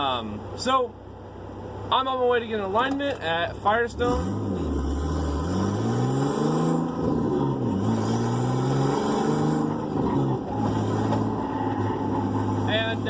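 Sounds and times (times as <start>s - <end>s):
car engine accelerating: 3.8s - 13.0s.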